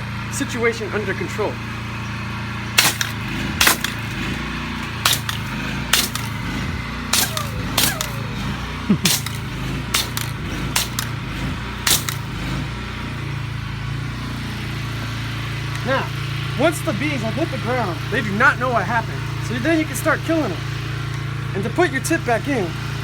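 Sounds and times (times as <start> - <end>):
pressure washer running: 2.3 - 23.0
sharp blasts of water: 2.8 - 4.3, 5.0 - 6.4, 7.2 - 11.1, 11.9 - 12.4.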